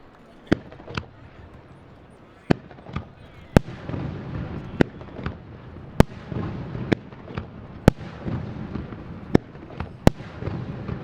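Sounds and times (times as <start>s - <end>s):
fireworks shells bursting: 0.0s - 11.0s.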